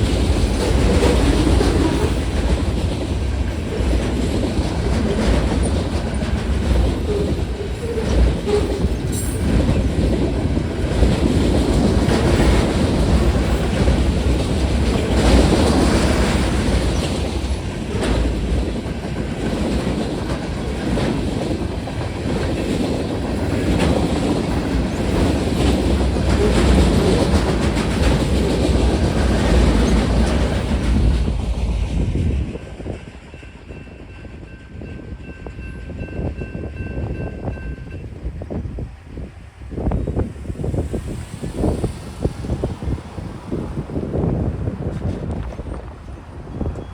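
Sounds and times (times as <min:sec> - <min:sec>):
wheels clacking over rail joints: 0:00.0 - 0:33.8
freight train rumbling past: 0:00.0 - 0:46.9.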